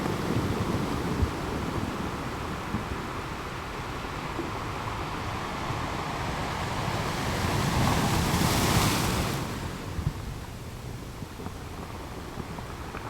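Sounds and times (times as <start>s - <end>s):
ocean surf: 0.0s - 10.0s.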